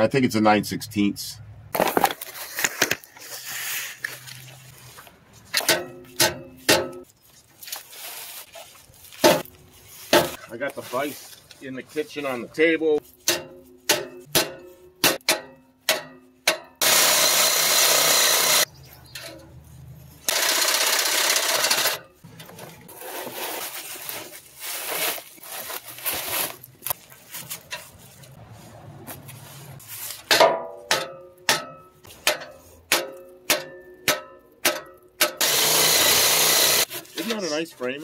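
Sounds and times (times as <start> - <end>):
ringing metal knocks: 5.6 - 7.0, 13.2 - 16.8, 30.3 - 35.4.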